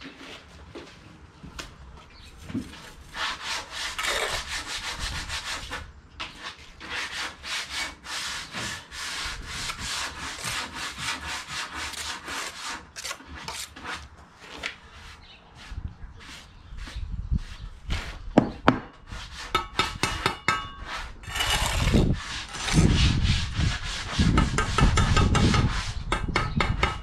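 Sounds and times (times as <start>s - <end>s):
hand scraping on brickwork: 2.6s - 27.0s.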